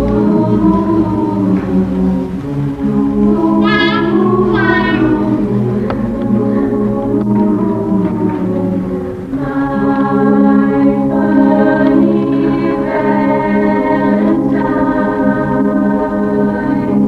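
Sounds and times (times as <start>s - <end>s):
choir singing chords: 0.0s - 17.0s.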